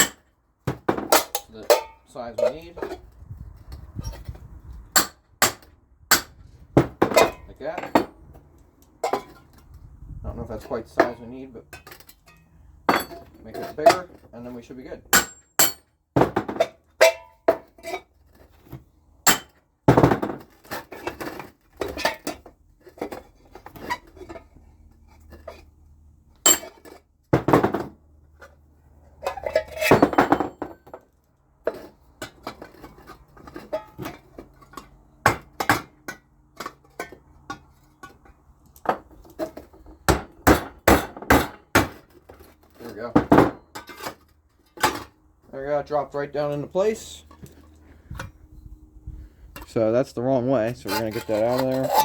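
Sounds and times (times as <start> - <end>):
hammer clinking on tin can: 15.1 - 15.9
scraping rattles: 50.6 - 52.0.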